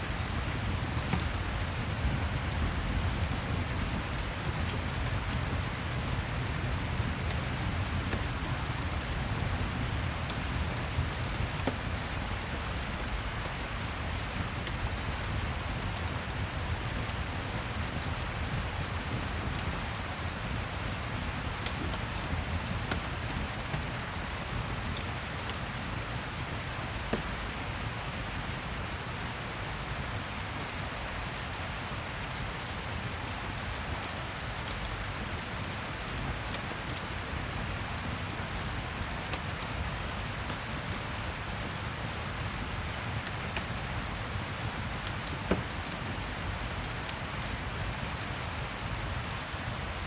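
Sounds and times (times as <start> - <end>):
fireplace crackling: 0.0 - 21.6, 32.3 - 39.8
steady rain: 0.0 - 50.0.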